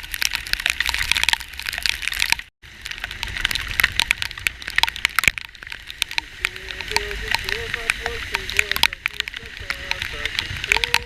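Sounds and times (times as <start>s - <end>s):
heavy rain drops crackling: 0.0s - 11.0s
low rumble: 0.0s - 11.0s.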